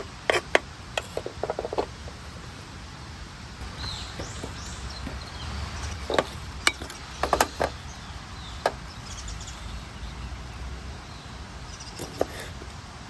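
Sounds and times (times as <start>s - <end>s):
low outdoor rumble: 0.0s - 13.0s
sharp knocks and clicks: 3.7s - 7.8s.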